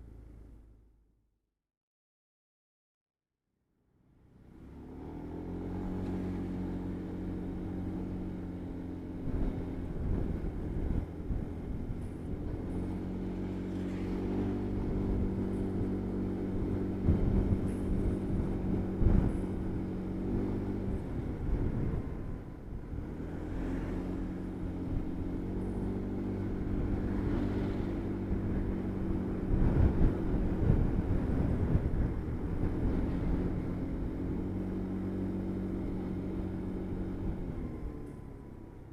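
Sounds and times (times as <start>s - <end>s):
motorbike engine running: 5.9s - 38.9s
wind noise on microphone: 7.4s - 38.6s.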